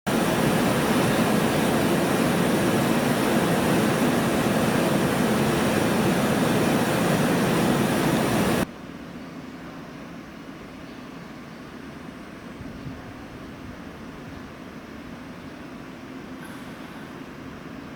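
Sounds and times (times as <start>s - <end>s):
steady hiss: 0.1s - 8.6s
train rumbling past: 0.1s - 8.7s.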